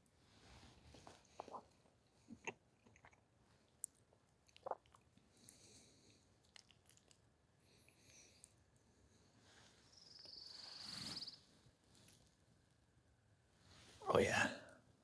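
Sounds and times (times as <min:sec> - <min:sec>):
person chewing: 0:01.2 - 0:05.7, 0:06.4 - 0:07.2.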